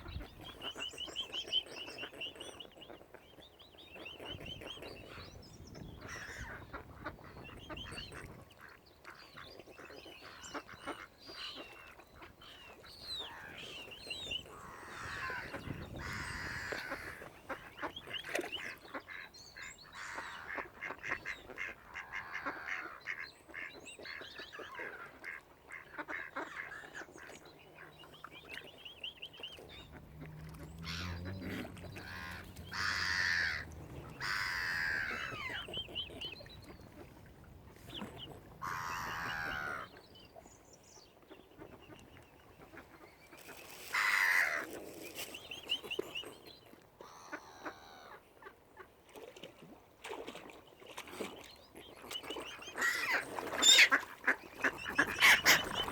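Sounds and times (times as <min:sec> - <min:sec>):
waterfowl calling: 0:10.2 - 0:40.0, 0:52.2 - 0:55.9.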